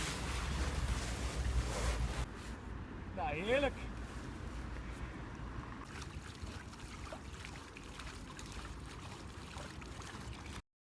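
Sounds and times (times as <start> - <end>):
water trickling and splashing: 5.3 - 10.6.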